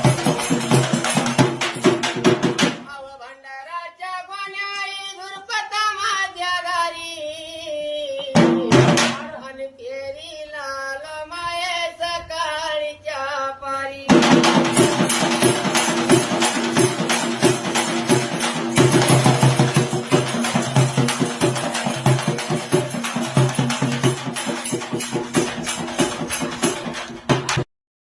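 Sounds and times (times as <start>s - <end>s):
drums and jingling percussion: 0.0s - 2.9s, 8.2s - 9.4s, 14.1s - 27.7s
loud percussion stroke: 0.0s - 2.9s, 8.3s - 9.4s, 14.1s - 27.7s
person singing: 2.8s - 14.4s.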